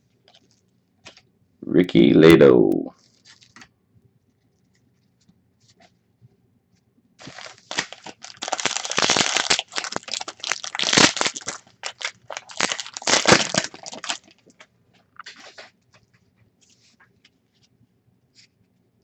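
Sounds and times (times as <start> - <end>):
foil wrapper crinkling: 3.0 - 3.7, 7.2 - 15.8.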